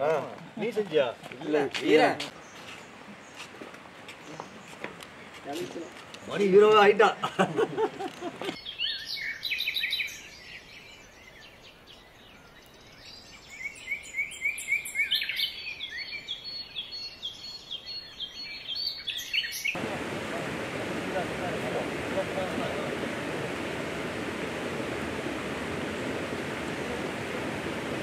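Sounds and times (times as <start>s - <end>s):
birds chirping: 0.0s - 28.0s
steady rushing noise: 19.8s - 28.0s.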